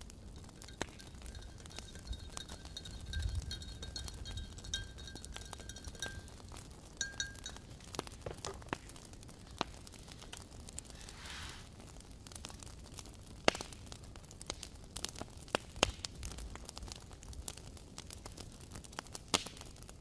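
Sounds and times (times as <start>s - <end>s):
fire hissing: 0.0s - 14.8s
campfire crackling: 0.0s - 20.0s.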